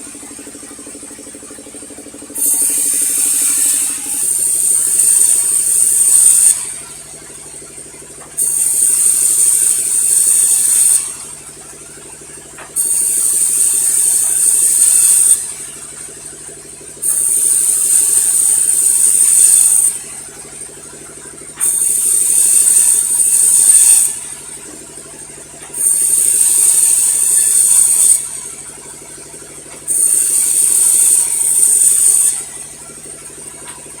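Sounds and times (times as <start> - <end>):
saw cutting timber hiss: 0.0 - 7.0, 8.4 - 11.3, 12.6 - 15.8, 17.0 - 20.2, 21.6 - 24.7, 25.8 - 28.6, 29.9 - 32.7
mill motor hum: 0.0 - 34.0.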